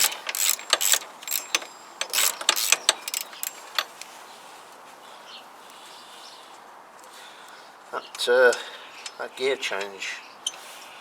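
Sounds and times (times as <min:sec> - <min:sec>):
hand tools clicking on metal: 0:00.0 - 0:04.1.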